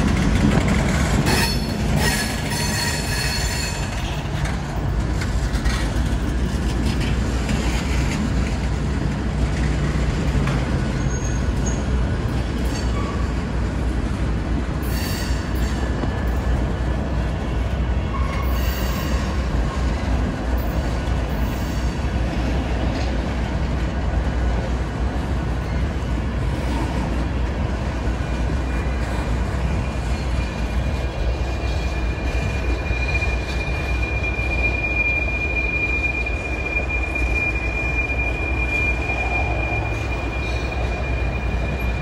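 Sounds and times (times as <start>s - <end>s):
train wheels rumbling on rails: 0.0s - 42.0s
wheel squeals: 0.1s - 4.4s, 10.6s - 11.9s, 28.4s - 42.0s.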